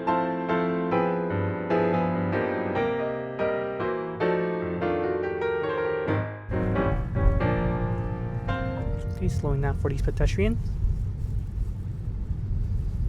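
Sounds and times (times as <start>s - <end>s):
gentle piano melody: 0.0s - 10.1s.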